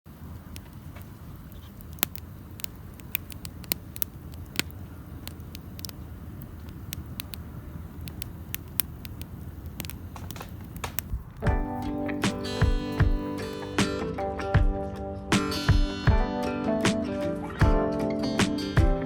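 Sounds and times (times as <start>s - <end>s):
wood fire crackling: 0.1s - 14.1s.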